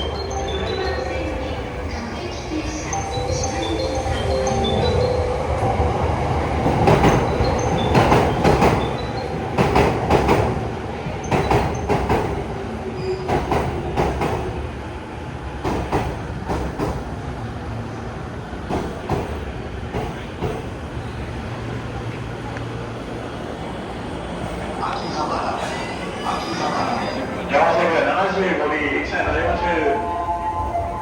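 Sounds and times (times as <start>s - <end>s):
train rumble: 0.0s - 31.0s
train wheels clattering over rails: 3.3s - 14.8s, 15.5s - 17.4s, 18.4s - 21.1s.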